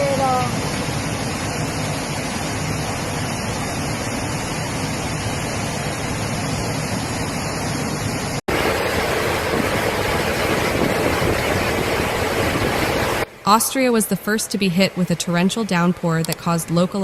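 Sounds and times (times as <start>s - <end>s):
fast-flowing floodwater rushing: 8.5s - 13.2s.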